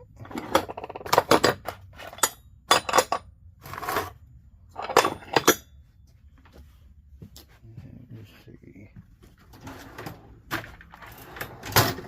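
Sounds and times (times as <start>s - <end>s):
metal parts clinking: 0.2s - 4.1s, 4.8s - 5.7s
metal scrape: 3.6s - 4.2s.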